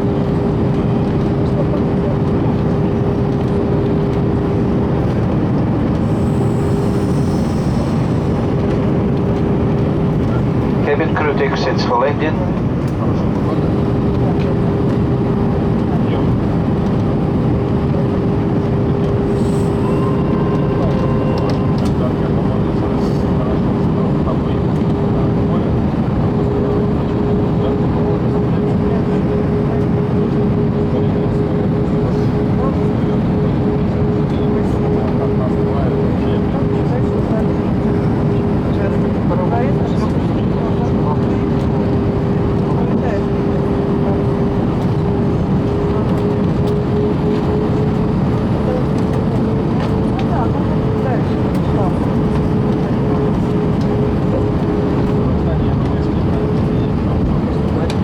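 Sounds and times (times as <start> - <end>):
airplane cabin engine rumble: 0.0 - 58.0
steady whine: 0.0 - 58.0
steady hum: 2.9 - 24.6.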